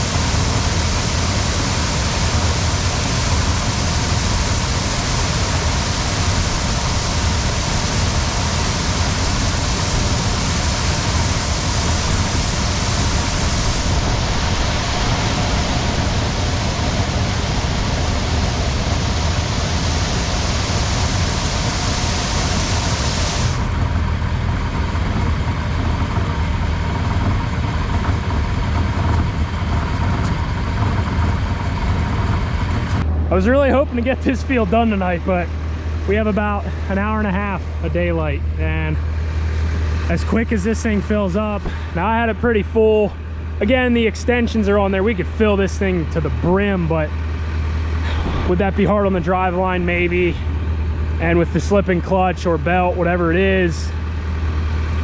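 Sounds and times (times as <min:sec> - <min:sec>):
high hiss: 0:00.0 - 0:23.7
combine harvester running: 0:00.0 - 0:55.0.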